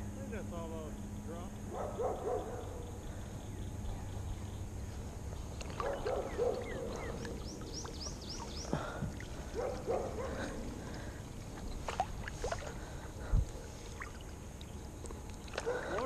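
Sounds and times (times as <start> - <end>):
steady low rumble: 0.0 - 15.7
bird chirping and warbling: 0.8 - 10.6.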